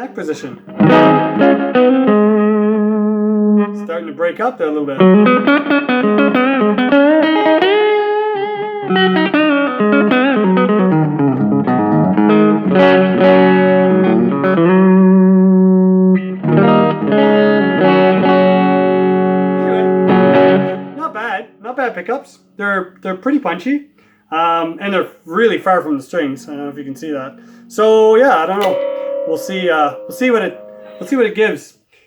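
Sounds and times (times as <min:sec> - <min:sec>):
electric guitar playing: 0:00.6 - 0:03.8, 0:05.0 - 0:21.0, 0:26.1 - 0:31.5.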